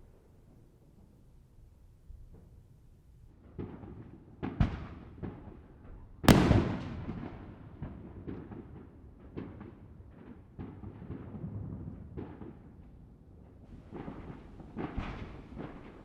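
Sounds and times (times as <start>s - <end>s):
distant fireworks bangs and pops: 3.4s - 5.6s, 6.2s - 16.0s
rolling echo: 6.3s - 8.7s.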